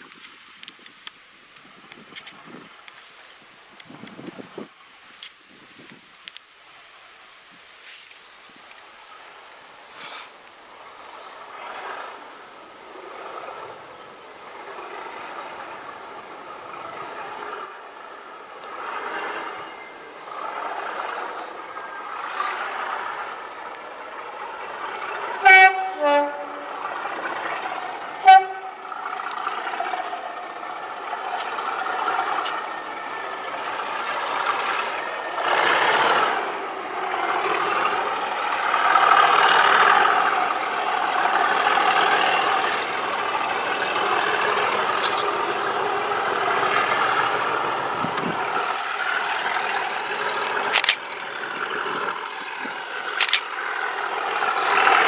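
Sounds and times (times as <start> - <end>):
diesel locomotive engine working: 9.0 - 55.0
two-tone locomotive horn: 14.5 - 50.6.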